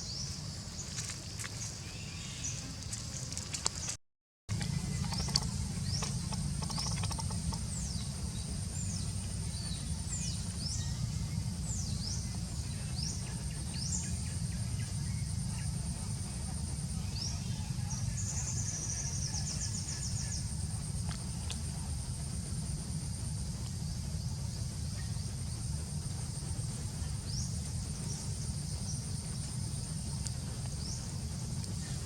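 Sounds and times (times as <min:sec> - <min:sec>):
birds chirping: 0:00.0 - 0:16.2, 0:24.0 - 0:32.0
steady low rumble: 0:00.0 - 0:32.0
insect trilling: 0:04.5 - 0:32.0.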